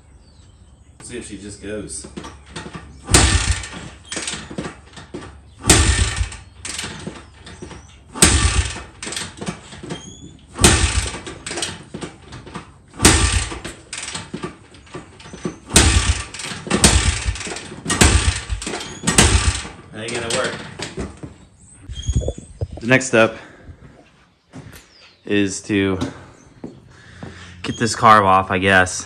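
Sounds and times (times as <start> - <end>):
motorcycle engine kick-started: 2.0 - 21.3.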